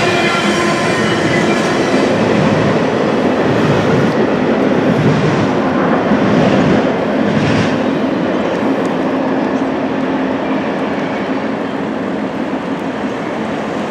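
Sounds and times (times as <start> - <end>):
freight cars rolling on rails: 0.0 - 13.9.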